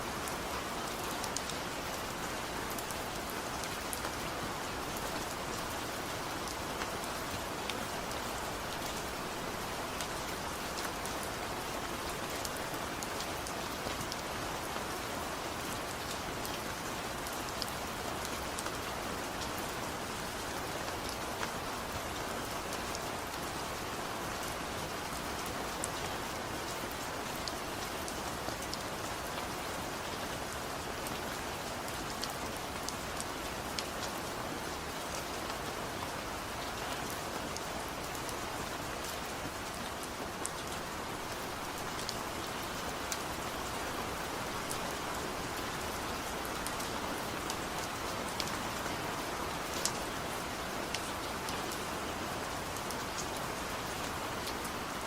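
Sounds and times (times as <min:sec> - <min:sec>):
gentle rain patter: 0:00.0 - 0:55.0.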